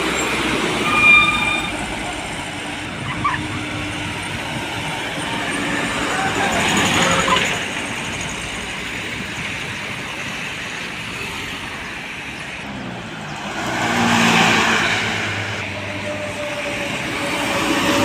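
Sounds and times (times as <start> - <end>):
steady traffic noise: 0.0 - 18.0
vehicle passing by: 13.4 - 15.6.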